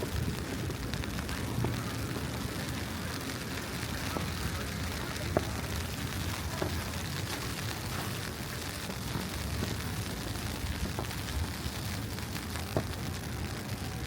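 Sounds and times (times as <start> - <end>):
low city rumble: 0.0 - 14.0.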